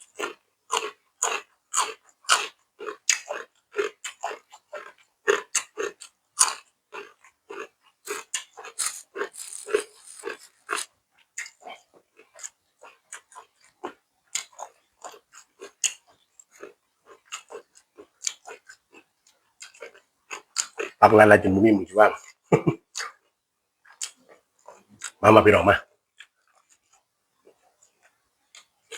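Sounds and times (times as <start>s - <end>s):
person chewing crunchy food: 0.0s - 21.0s, 22.9s - 25.2s
wet mouth clicks: 0.2s - 13.8s, 14.4s - 18.8s, 19.6s - 21.0s, 23.0s - 23.2s, 23.9s - 25.2s.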